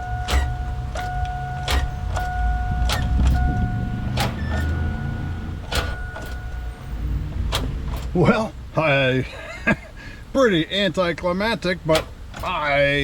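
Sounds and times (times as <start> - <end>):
sharp mechanical clunks: 0.0 - 5.0, 5.6 - 6.7, 7.4 - 8.2
starter high whine: 0.0 - 8.6
engine cranking rumble: 0.0 - 8.7.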